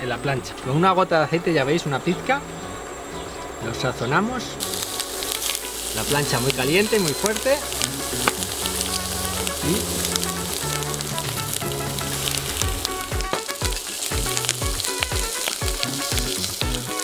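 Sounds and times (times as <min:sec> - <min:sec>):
background music with bass: 0:00.0 - 0:17.0
prawns sizzling in a pan: 0:03.5 - 0:17.0.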